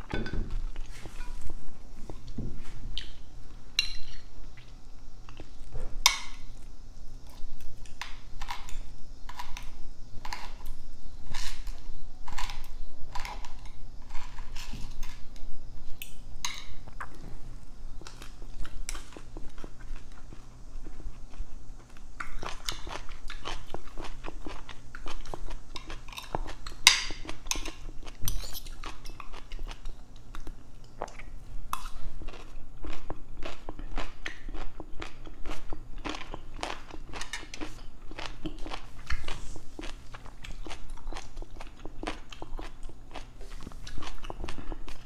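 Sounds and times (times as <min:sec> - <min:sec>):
person chewing food: 0:16.7 - 0:45.0.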